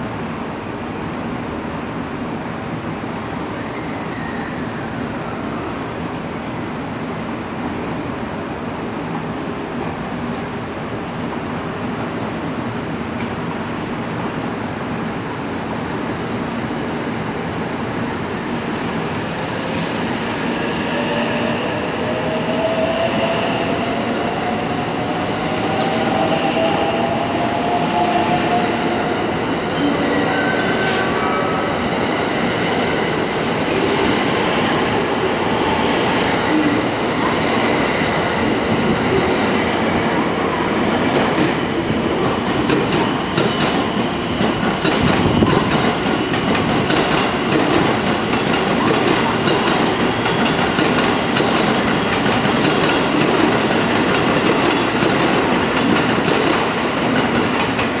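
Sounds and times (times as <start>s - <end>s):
train wheels rumbling on rails: 16.1s - 58.0s.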